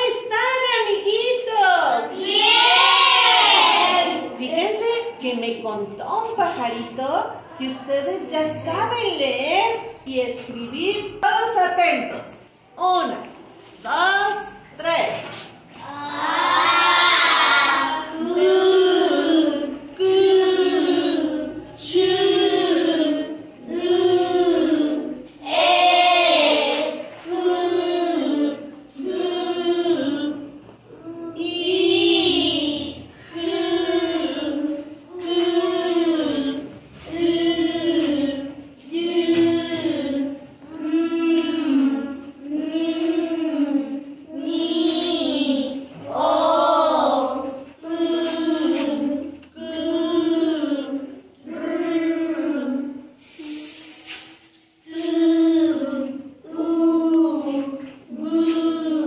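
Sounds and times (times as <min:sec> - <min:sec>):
children chanting in unison: 0:02.0 - 0:04.4, 0:15.8 - 0:59.0.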